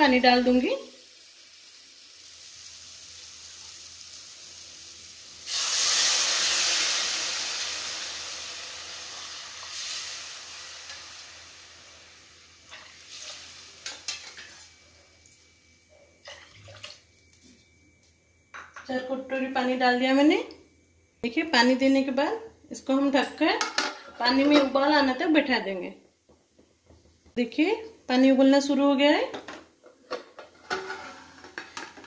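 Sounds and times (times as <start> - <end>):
water hissing in hot pan: 0.0 - 14.9
masala sizzling in hot oil: 0.0 - 15.7.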